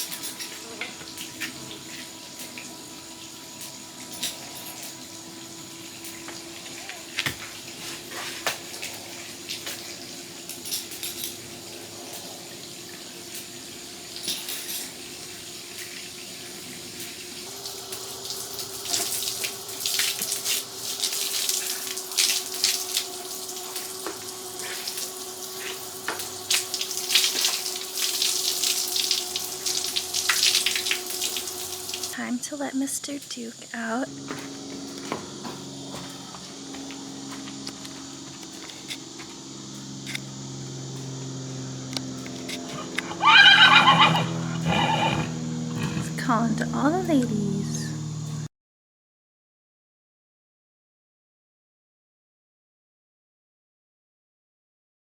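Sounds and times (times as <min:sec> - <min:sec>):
water spraying and splashing: 0:00.0 - 0:32.2
water running from a hose: 0:00.0 - 0:34.0, 0:41.9 - 0:48.1.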